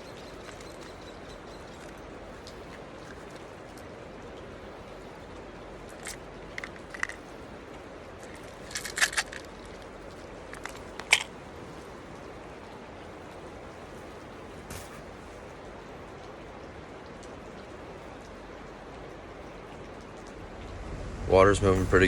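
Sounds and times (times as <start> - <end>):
crunching clicks: 0.0 - 3.9, 5.8 - 11.4
creek water rushing: 0.0 - 22.0.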